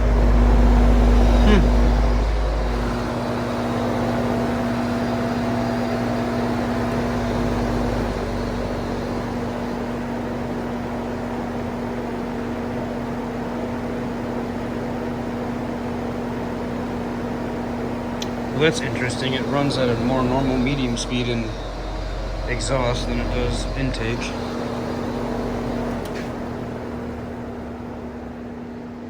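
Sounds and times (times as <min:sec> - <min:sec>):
fan air rushing: 0:00.0 - 0:10.4, 0:18.2 - 0:27.0
electric motor hum: 0:00.0 - 0:12.2, 0:18.1 - 0:28.6.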